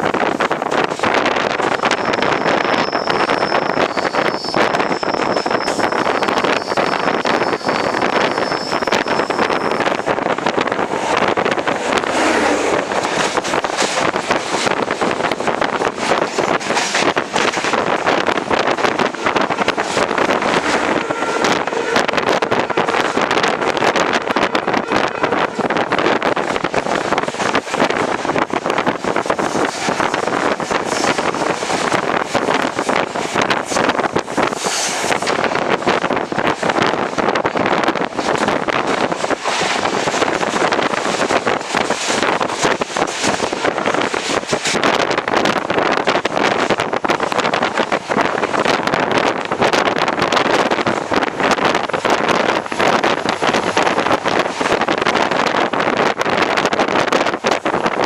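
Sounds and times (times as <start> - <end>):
train wheels rattling: 0.0 - 58.0
wind buffeting microphone: 0.0 - 58.0.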